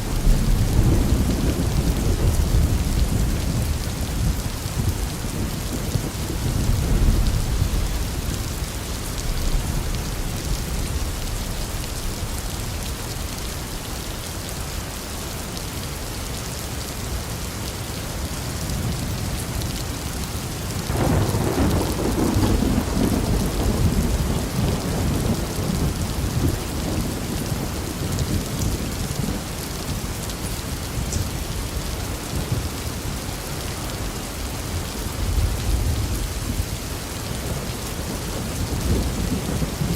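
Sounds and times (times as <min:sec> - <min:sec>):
loud thunderclap: 0:00.0 - 0:08.4, 0:20.9 - 0:27.0
thunder rumbling: 0:00.0 - 0:14.2, 0:20.8 - 0:29.5, 0:33.6 - 0:39.9
heavy rain hissing: 0:00.0 - 0:39.9.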